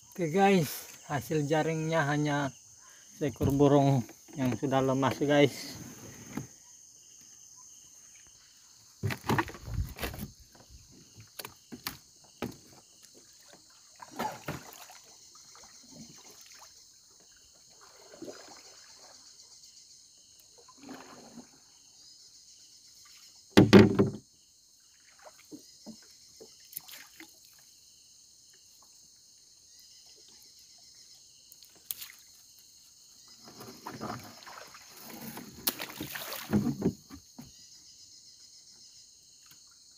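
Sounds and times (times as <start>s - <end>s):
insects chirring: 0.0s - 39.9s
paddle knocking against hull: 3.4s - 5.2s, 9.0s - 12.9s, 23.6s - 24.2s, 35.2s - 37.6s
paddle splashes: 9.0s - 19.5s, 20.5s - 21.9s, 24.8s - 27.8s, 31.8s - 32.4s, 33.2s - 37.3s.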